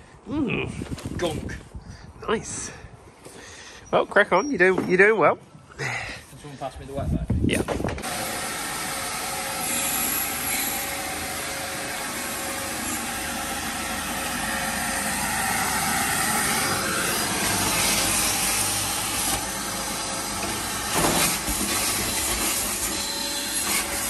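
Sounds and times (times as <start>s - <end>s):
vacuum cleaner running: 8.0s - 24.0s.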